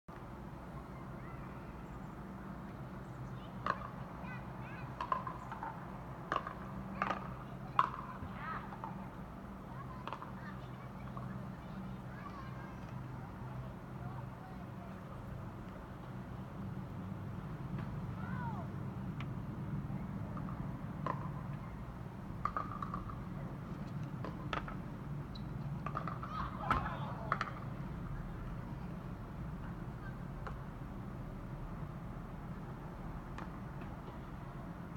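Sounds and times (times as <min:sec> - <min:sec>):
distant helicopter droning: 0:00.1 - 0:34.9.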